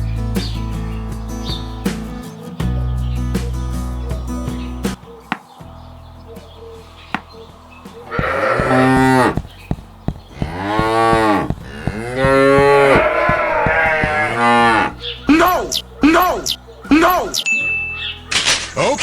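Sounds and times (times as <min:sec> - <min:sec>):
cow mooing: 0:08.1 - 0:09.4, 0:10.3 - 0:16.6.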